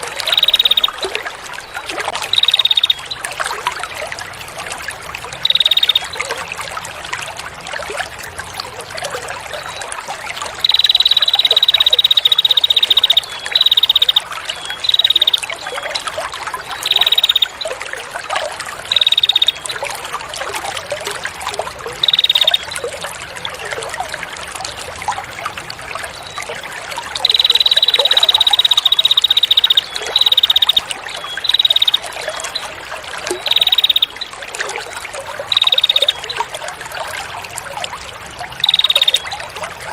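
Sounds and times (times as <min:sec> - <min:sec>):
songbird buzzy trill: 0:00.0 - 0:01.0, 0:02.2 - 0:03.2, 0:05.4 - 0:06.2, 0:10.6 - 0:15.9, 0:16.7 - 0:17.7, 0:18.9 - 0:19.8, 0:22.0 - 0:22.8, 0:27.2 - 0:32.6, 0:33.4 - 0:34.3, 0:35.5 - 0:36.4, 0:38.6 - 0:39.3
trickling water: 0:00.0 - 0:39.9.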